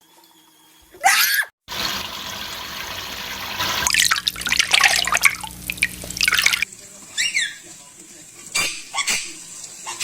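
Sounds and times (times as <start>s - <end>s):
shower water running: 0.0s - 10.0s
bird splashing in water: 3.6s - 7.5s
parrot squawk: 7.2s - 7.6s.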